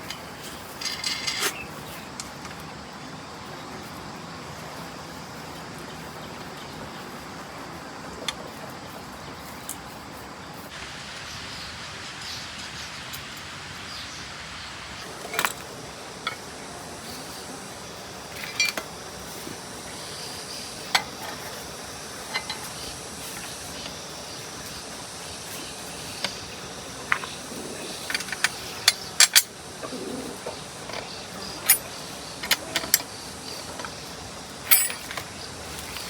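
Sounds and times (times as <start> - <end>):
hand tools clinking on metal: 0.0 - 2.6, 15.0 - 19.5, 20.3 - 24.1, 25.5 - 36.0
steady hiss: 0.0 - 36.0.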